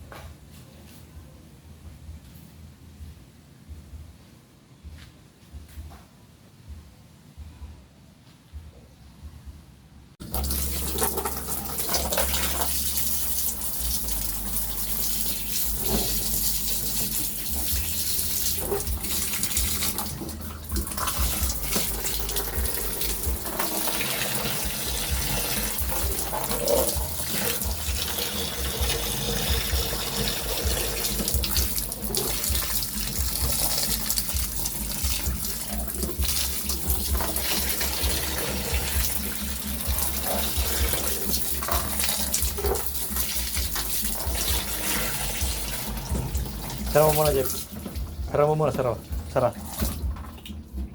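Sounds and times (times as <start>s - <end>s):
water running and splashing: 10.2s - 50.9s.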